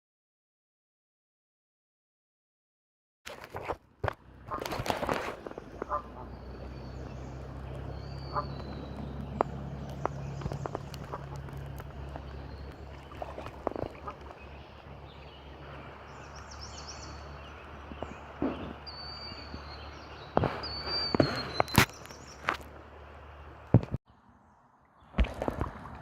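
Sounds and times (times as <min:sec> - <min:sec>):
steady low rumble: 0:04.2 - 0:20.7
high bird chirps: 0:05.8 - 0:22.6.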